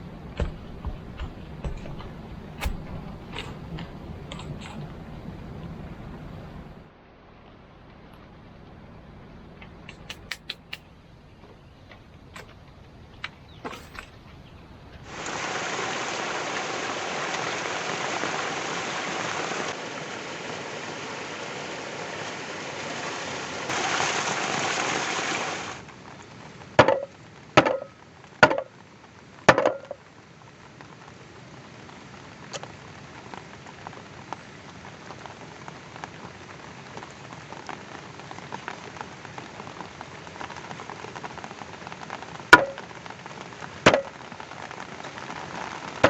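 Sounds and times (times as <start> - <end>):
rain falling: 0.0 - 46.0
sharp knocks: 0.2 - 4.9.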